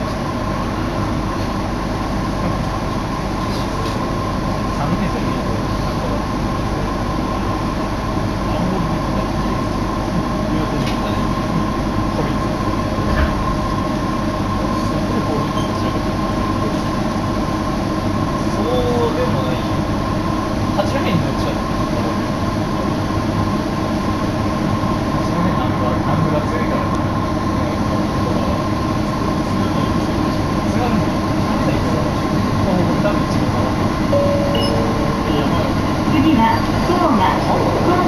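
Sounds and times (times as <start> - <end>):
train carriage hum and rumble: 0.0 - 38.0
steady mid-pitched tone: 34.0 - 38.0.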